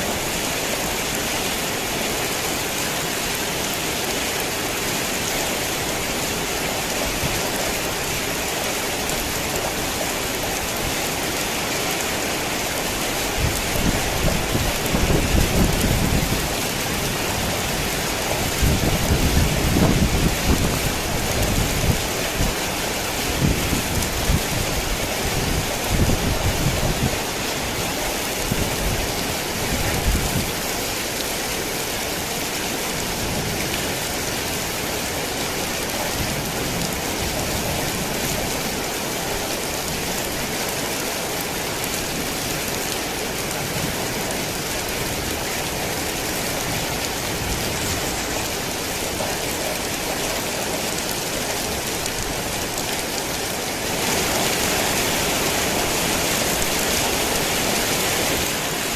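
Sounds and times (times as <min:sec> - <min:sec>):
heavy rain falling: 0:00.0 - 0:58.9.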